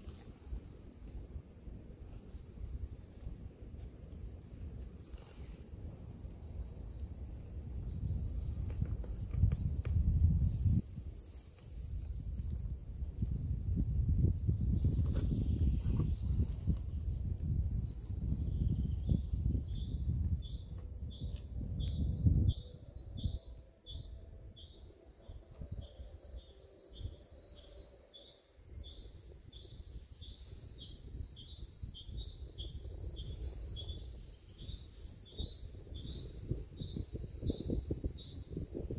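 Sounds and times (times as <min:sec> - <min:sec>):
bird chirping: 0:18.1 - 0:38.4.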